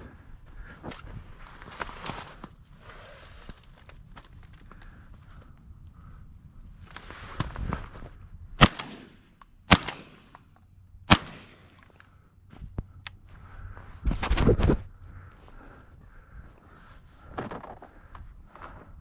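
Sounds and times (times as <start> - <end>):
shotgun shots with echo: 8.6 - 10.4, 11.1 - 11.8.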